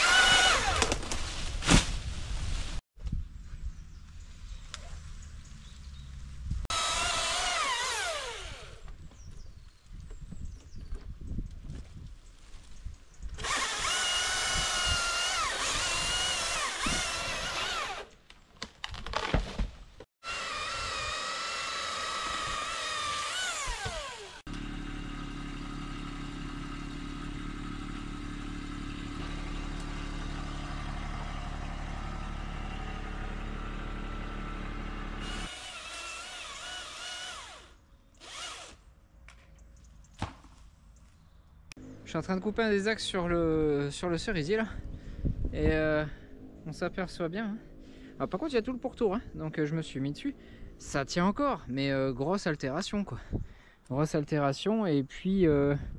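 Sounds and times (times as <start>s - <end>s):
chainsaw cutting wood: 0.0s - 1.1s, 6.7s - 8.9s, 13.4s - 18.1s, 20.2s - 38.8s
low engine hum: 24.5s - 35.5s.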